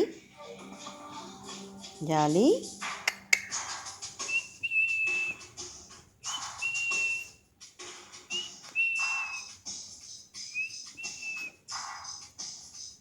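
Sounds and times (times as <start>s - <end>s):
pet bird whistling: 3.1s - 7.4s, 8.2s - 9.7s, 10.4s - 11.6s.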